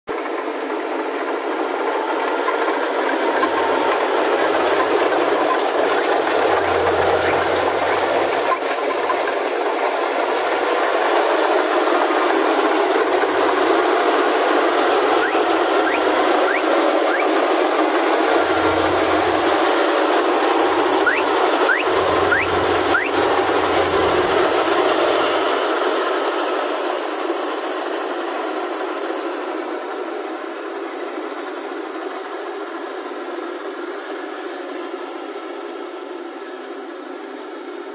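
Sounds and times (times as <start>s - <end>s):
combine harvester running: 0.1s - 34.7s.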